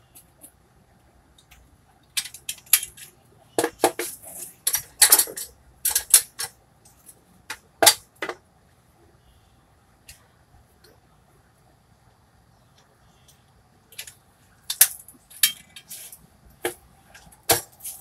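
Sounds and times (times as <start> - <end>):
metal clanking and clinking: 14.7 - 16.1.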